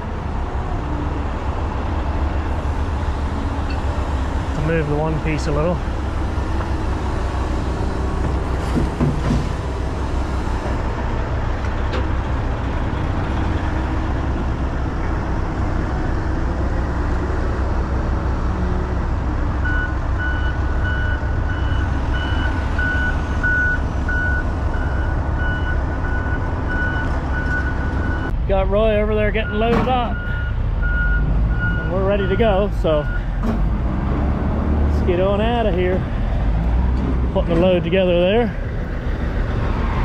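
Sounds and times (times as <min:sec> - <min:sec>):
diesel truck idling: 0:00.0 - 0:40.0
knocks: 0:08.2 - 0:09.6
reversing alarm beeping: 0:19.6 - 0:28.3, 0:29.4 - 0:33.3.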